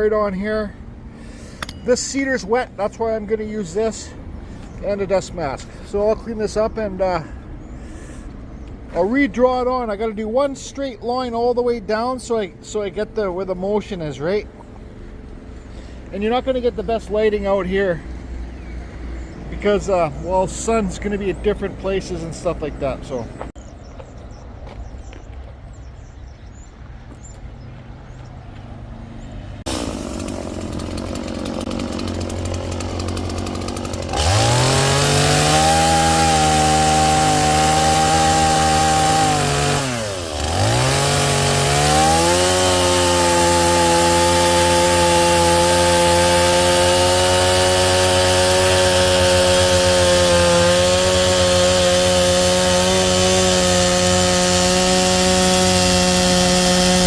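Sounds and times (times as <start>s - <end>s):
angle grinder spinning: 29.7s - 57.0s.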